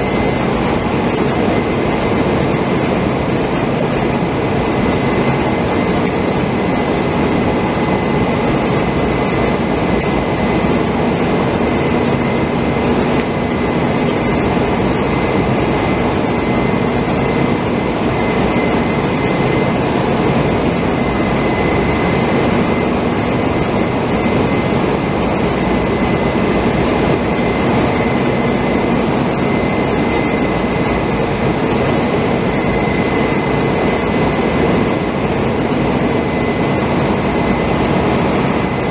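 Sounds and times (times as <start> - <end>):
machinery high whine: 0.0 - 38.9.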